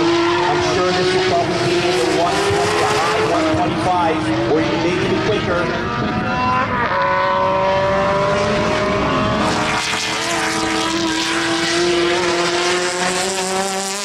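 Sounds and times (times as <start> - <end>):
race car engine accelerating: 0.0 - 14.0.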